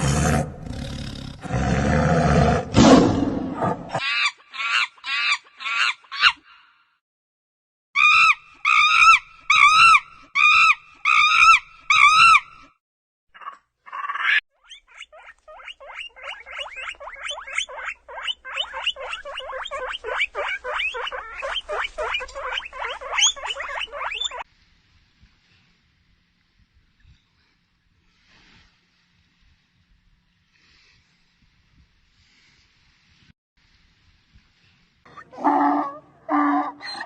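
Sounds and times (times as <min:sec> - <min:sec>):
rapid chattering animal calls: 0:13.4 - 0:24.4
short pitched animal calls: 0:13.4 - 0:24.4.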